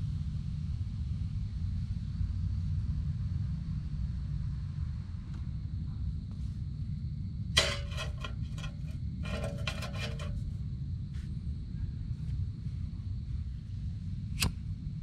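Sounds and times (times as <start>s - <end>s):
metallic clinking of utensils: 7.6s - 10.4s.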